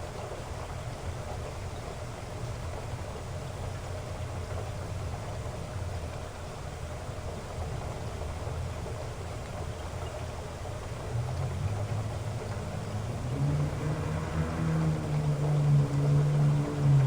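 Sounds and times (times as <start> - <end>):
heavy rain falling: 10.9 - 17.0.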